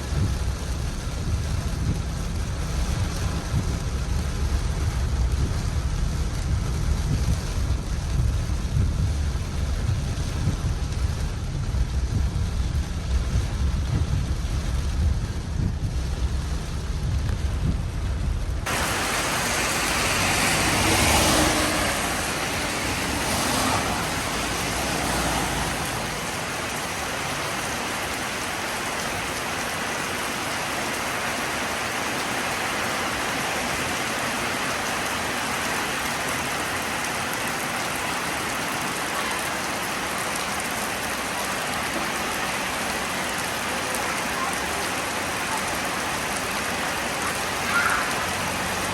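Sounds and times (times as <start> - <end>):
deep rumble: 0.0 - 26.5
heavy rainfall: 0.0 - 48.9.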